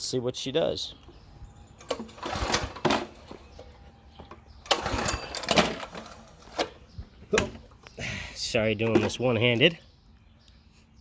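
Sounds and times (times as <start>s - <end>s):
recoil starter cranking engine: 1.8s - 3.7s, 4.4s - 7.6s.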